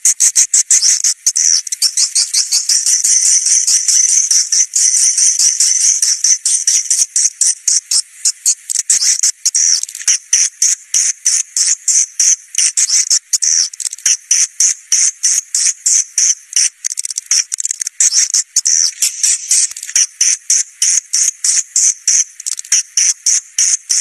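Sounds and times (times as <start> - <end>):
high-pitched bird chirps: 0.3 - 7.6.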